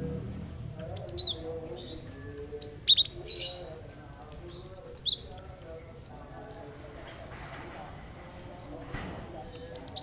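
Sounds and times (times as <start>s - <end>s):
bird chirping: 0.8s - 6.0s, 9.4s - 10.0s.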